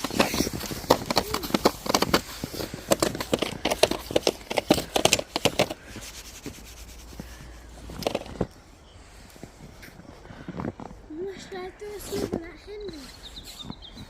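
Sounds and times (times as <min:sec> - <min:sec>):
snow crunching: 0:00.0 - 0:08.4.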